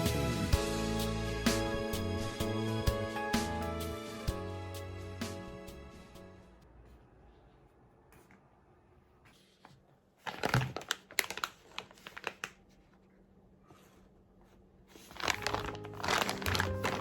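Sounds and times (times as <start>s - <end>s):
background music: 0.0s - 6.6s, 15.3s - 17.0s
crinkling and clicking handling: 10.2s - 13.0s, 14.9s - 17.0s.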